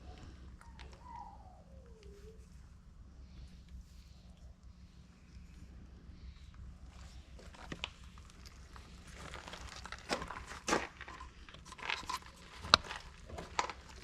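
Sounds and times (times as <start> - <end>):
hands handling engine parts: 6.5 - 14.0.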